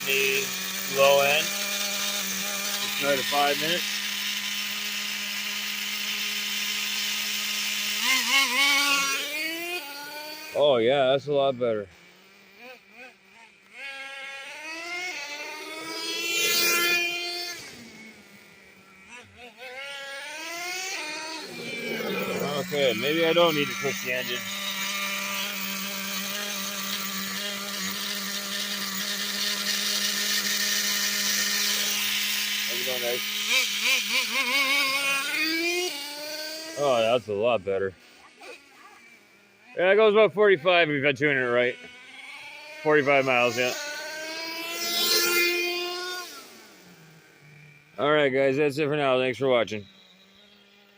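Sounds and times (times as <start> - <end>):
small nitro engine idling and revving: 0.0 - 50.9.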